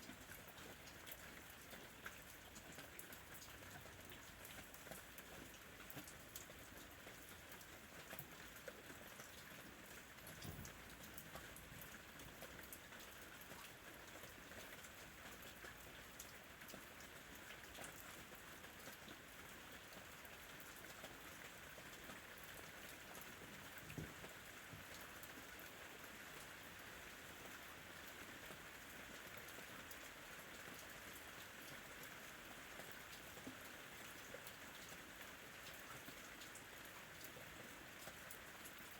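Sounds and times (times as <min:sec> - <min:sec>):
soft rain falling: 0:00.0 - 0:38.9.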